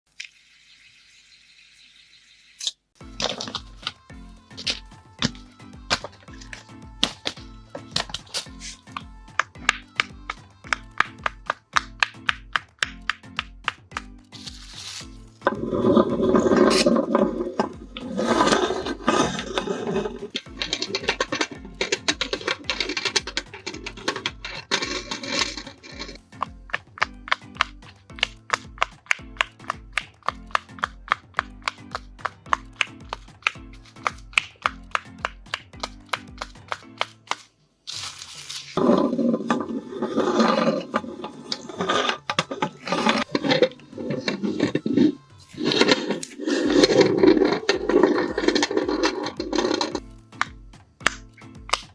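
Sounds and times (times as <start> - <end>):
music beat: 3.0 - 37.4, 38.8 - 51.9
meat grinder grinding rubber: 13.6 - 51.9.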